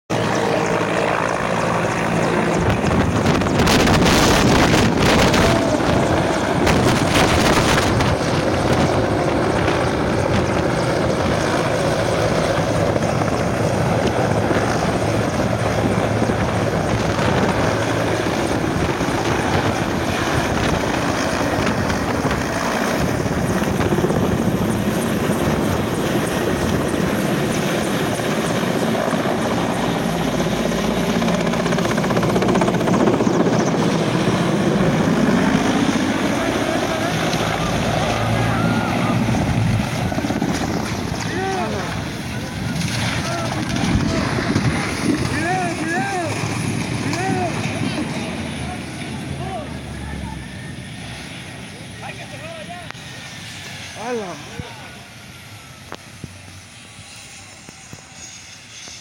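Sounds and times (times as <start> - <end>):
wind noise on microphone: 2.0 - 48.5.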